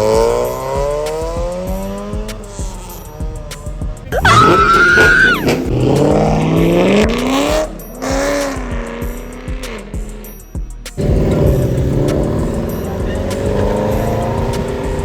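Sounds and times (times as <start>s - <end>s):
car engine revving: 0.0s - 10.2s, 11.0s - 15.0s
tire squeal: 2.0s - 8.5s, 11.0s - 15.0s.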